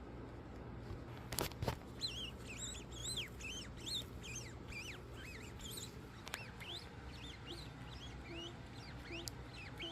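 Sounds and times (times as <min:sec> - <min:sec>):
low steady hum: 0:00.0 - 0:09.9
high-pitched chirps: 0:02.0 - 0:09.9.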